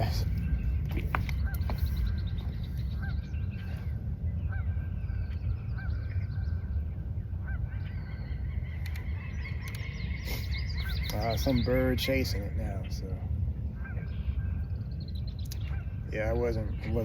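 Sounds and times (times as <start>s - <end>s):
bird honking call: 0.0s - 13.0s, 13.7s - 14.9s, 15.6s - 17.0s
bird chirps: 0.0s - 17.0s
low rumble: 0.0s - 17.0s.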